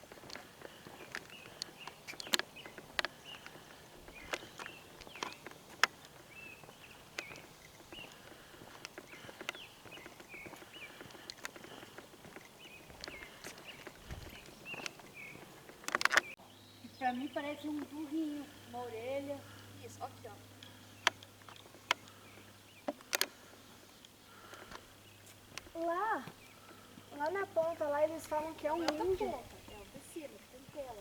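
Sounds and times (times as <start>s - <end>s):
small birds chirping: 0.0s - 31.0s
sharp clicks and taps: 0.2s - 15.1s, 15.7s - 16.4s.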